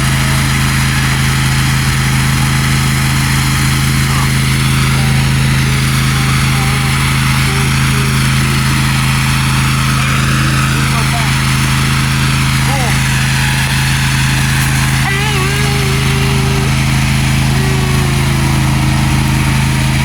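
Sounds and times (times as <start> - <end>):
riding lawn mower engine running: 0.0 - 20.0.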